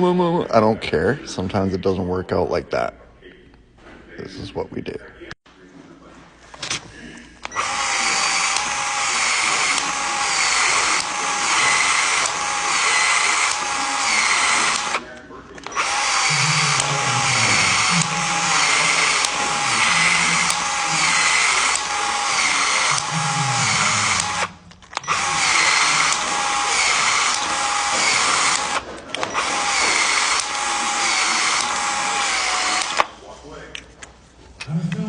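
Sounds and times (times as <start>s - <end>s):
handheld power tool running: 7.4s - 33.2s.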